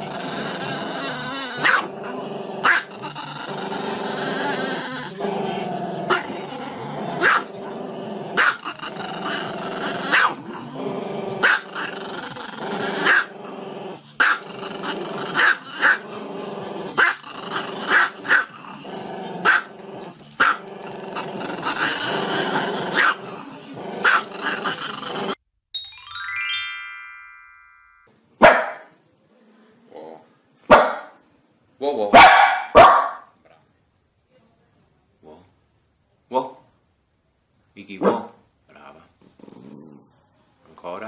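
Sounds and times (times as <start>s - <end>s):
dog growling: 0.0s - 25.4s, 39.2s - 40.2s
dog barking: 1.6s - 1.9s, 7.2s - 7.5s, 8.4s - 8.6s, 10.1s - 10.4s, 11.4s - 11.6s, 14.2s - 14.4s, 19.4s - 19.7s, 23.0s - 23.2s, 24.0s - 24.3s, 28.4s - 28.9s, 30.7s - 31.2s, 32.1s - 33.3s, 38.0s - 38.4s.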